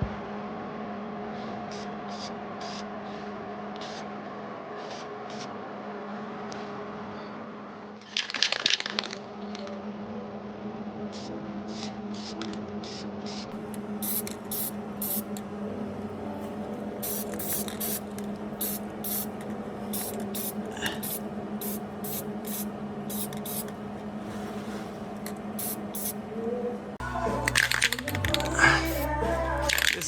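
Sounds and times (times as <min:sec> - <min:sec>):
spray paint can hissing: 0:02.1 - 0:02.8, 0:11.2 - 0:13.4, 0:14.0 - 0:15.4, 0:17.0 - 0:26.2, 0:27.5 - 0:30.0.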